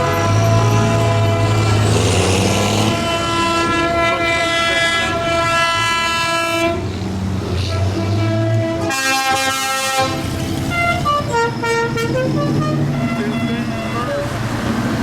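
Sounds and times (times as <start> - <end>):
tractor engines running: 0.0 - 8.9, 10.0 - 15.0.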